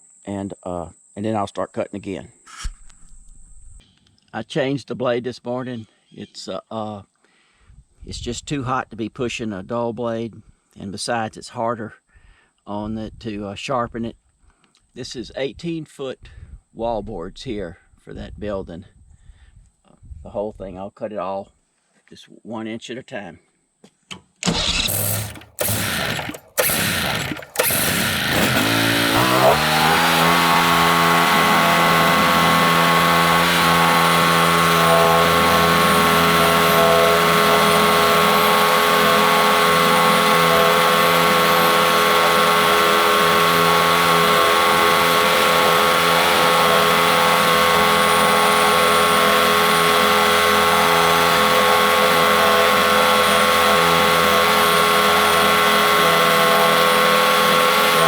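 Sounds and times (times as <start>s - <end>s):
sawmill gas engine revving: 24.4s - 58.0s.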